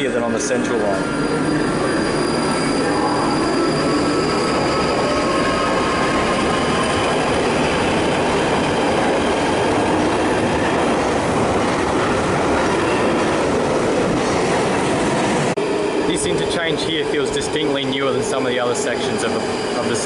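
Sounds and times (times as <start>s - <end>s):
train rumbling and rattling on rails: 0.0s - 20.0s
faint high wheel squeal: 0.8s - 7.1s, 17.2s - 20.0s.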